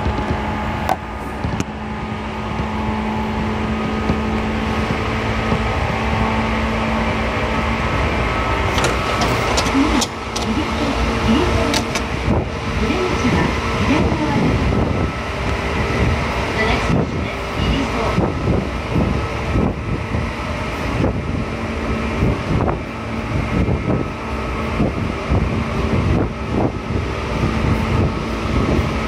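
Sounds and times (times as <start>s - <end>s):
train wheels rumbling on rail: 0.0s - 29.0s
wheels clicking and clacking: 8.6s - 12.4s.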